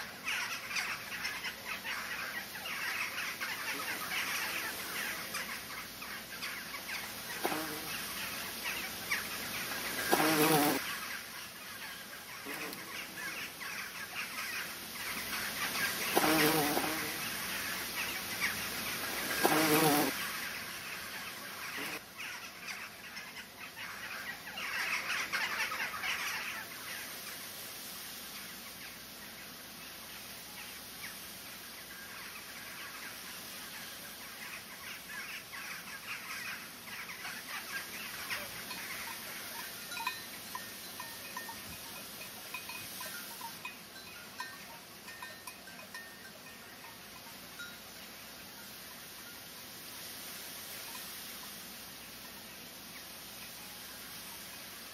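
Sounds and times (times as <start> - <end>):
birds chirping: 0.0 - 27.1.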